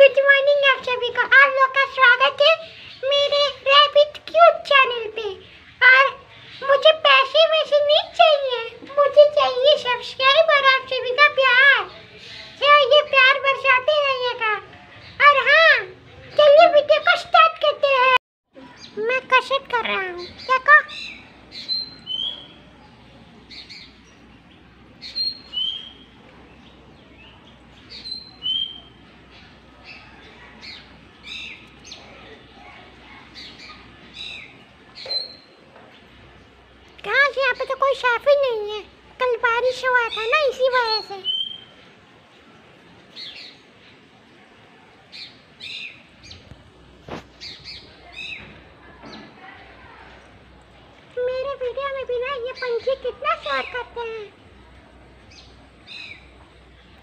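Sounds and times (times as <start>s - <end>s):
bird calling: 18.6s - 35.8s, 39.5s - 44.0s.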